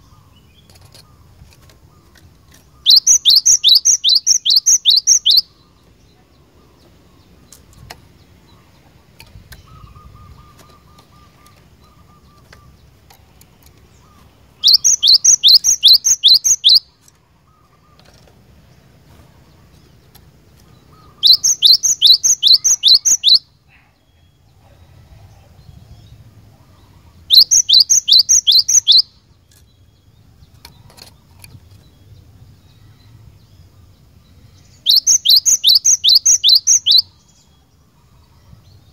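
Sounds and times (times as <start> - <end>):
bird singing high notes: 2.8 - 5.8, 14.6 - 17.6, 20.9 - 23.6, 27.3 - 29.3, 34.7 - 37.5.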